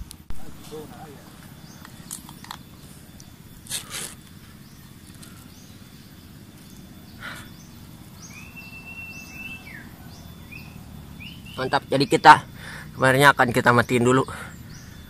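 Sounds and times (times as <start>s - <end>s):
rustling branches and leaves: 0.0s - 11.9s
high bird chirps: 0.6s - 15.0s
bird whistle falling: 8.2s - 11.7s.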